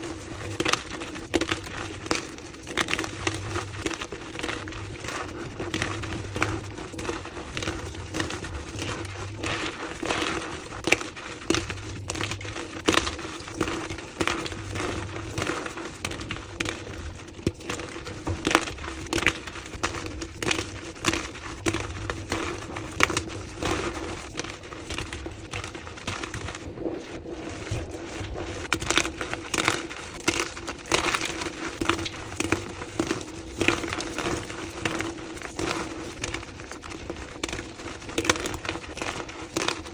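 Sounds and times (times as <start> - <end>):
steady low hum: 0.0 - 30.6
chalk crunching and crackling: 0.0 - 39.9.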